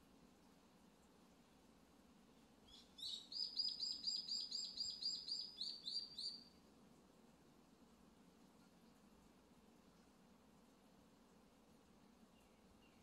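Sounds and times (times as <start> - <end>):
songbird trill: 2.4 - 6.6, 12.3 - 13.0.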